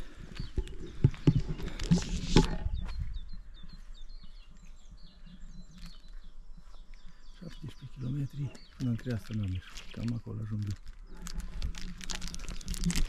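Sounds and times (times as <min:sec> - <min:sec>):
small songbird chirping: 0:00.1 - 0:13.0
close rustling and handling noise: 0:08.7 - 0:13.0.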